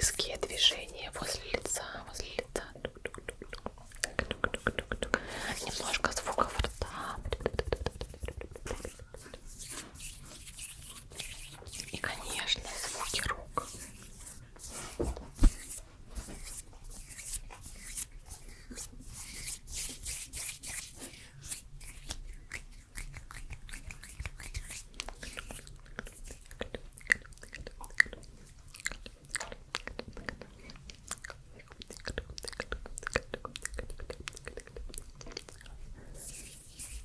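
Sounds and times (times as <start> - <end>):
wet mouth clicks and smacks: 2.4 - 13.8, 21.5 - 35.8
soft hand rustling: 7.8 - 22.2.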